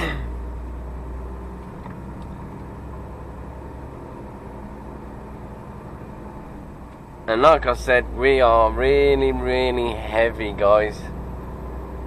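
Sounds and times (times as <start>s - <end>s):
lorry diesel engine running: 0.0s - 12.0s
road noise: 0.0s - 12.0s.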